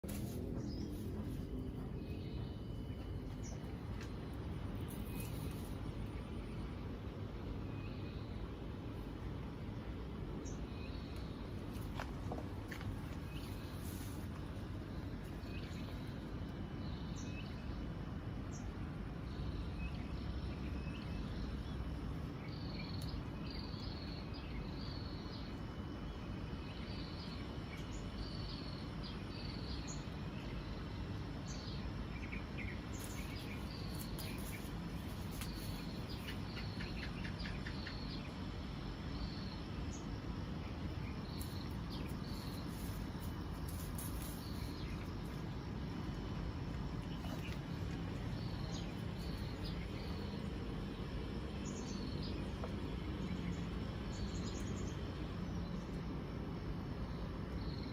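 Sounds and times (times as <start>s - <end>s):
low rumble: 0.0s - 23.4s.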